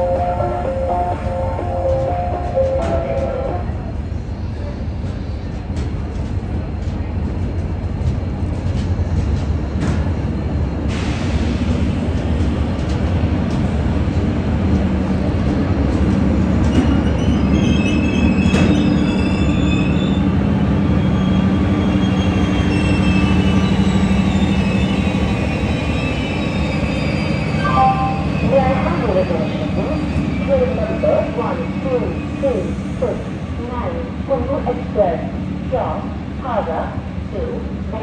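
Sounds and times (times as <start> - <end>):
train rumbling along track: 0.0 - 38.0
steel wheels squealing: 16.6 - 33.4.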